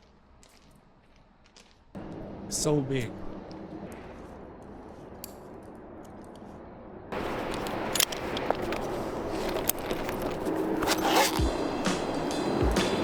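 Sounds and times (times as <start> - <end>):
outdoor background hiss: 7.1 - 13.0.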